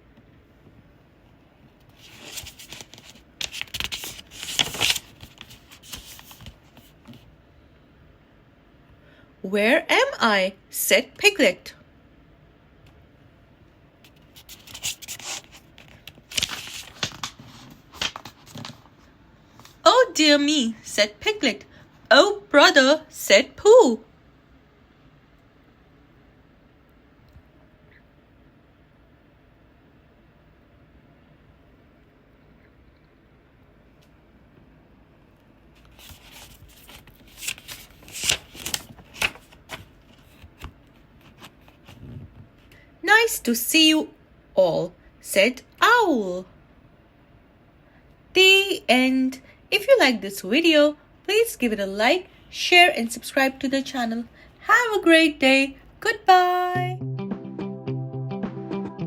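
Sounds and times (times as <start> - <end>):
book pages turning: 1.8 - 7.3, 14.1 - 18.9, 35.8 - 42.1
paper snapping: 2.1 - 6.5, 36.0 - 40.4.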